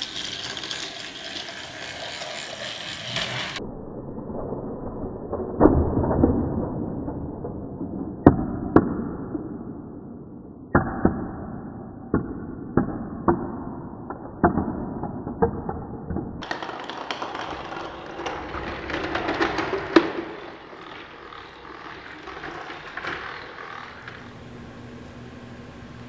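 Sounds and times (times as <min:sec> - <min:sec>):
toy train rumble: 0:00.0 - 0:03.6, 0:16.4 - 0:24.5.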